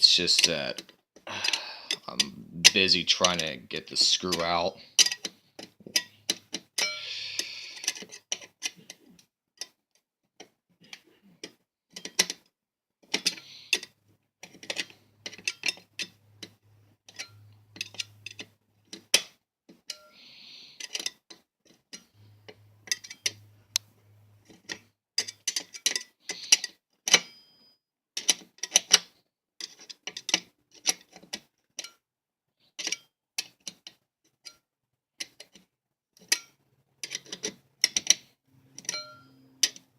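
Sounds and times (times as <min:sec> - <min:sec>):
knife scraping screw head: 0:01.4 - 0:09.0, 0:13.0 - 0:16.5, 0:20.8 - 0:22.1, 0:22.9 - 0:23.4, 0:24.5 - 0:27.6, 0:28.2 - 0:32.0, 0:32.8 - 0:34.6, 0:36.2 - 0:39.9.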